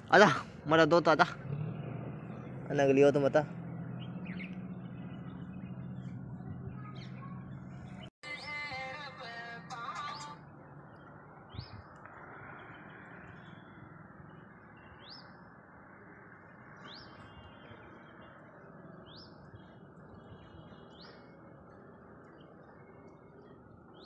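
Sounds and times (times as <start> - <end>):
outdoor background noise: 0.0 - 24.0
bird rising chirp: 1.4 - 9.0.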